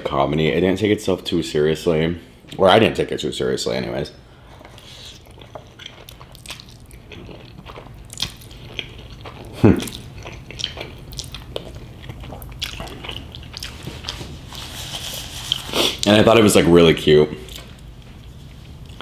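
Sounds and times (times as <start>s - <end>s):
chewing and crunching food: 4.4s - 16.1s.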